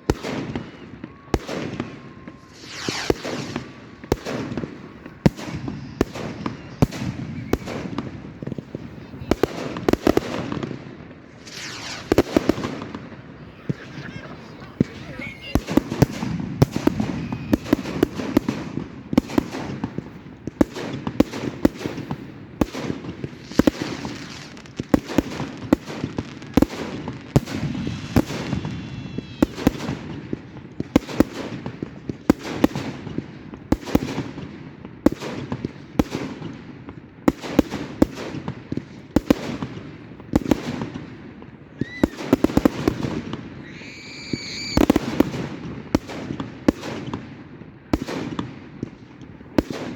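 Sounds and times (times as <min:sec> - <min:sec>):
fireworks whistling: 0:00.0 - 0:10.7, 0:11.3 - 0:31.9, 0:41.7 - 0:45.6
fireworks bangs and crackling: 0:00.0 - 0:49.9.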